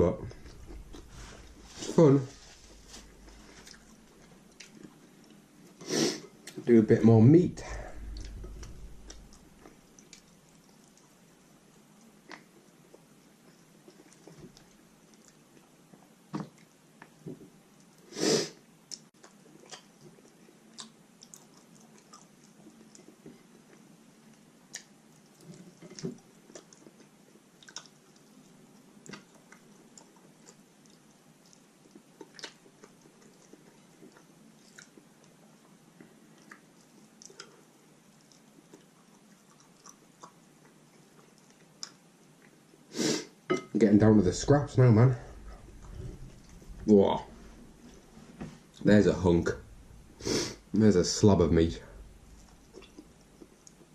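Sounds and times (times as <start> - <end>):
close chewing of meat: 19.0 - 42.7.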